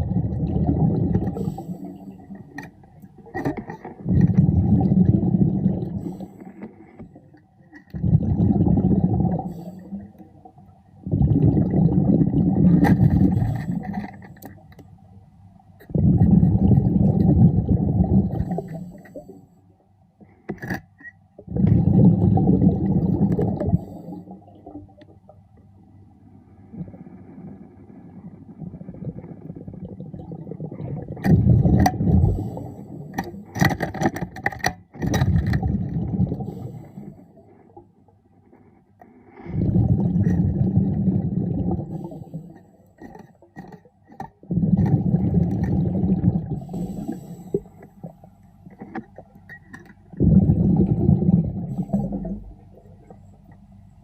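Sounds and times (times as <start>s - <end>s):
underwater bubbles rushing: 0.0s - 14.6s, 15.8s - 19.4s, 21.4s - 25.4s, 26.6s - 34.0s, 35.0s - 37.6s, 39.5s - 54.0s
diver inhaling: 46.6s - 47.8s.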